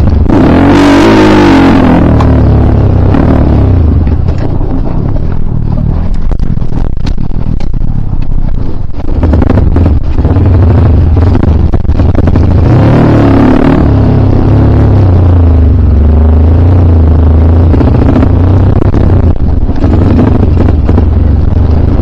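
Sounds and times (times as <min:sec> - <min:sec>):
dirt bike engine revving: 0:00.0 - 0:04.2, 0:09.0 - 0:15.9
knocks and clatter over rough ground: 0:02.1 - 0:12.7, 0:17.6 - 0:22.0.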